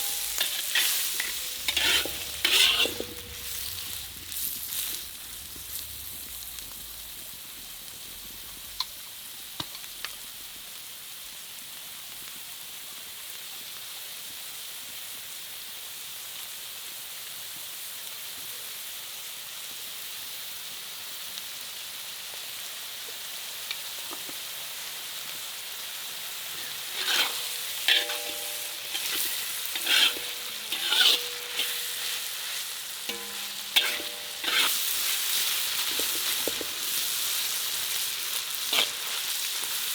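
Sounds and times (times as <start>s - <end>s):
utensil scraping a pan: 0.0s - 6.2s, 26.5s - 37.3s, 38.6s - 39.7s
food sizzling in a pan: 0.0s - 39.9s.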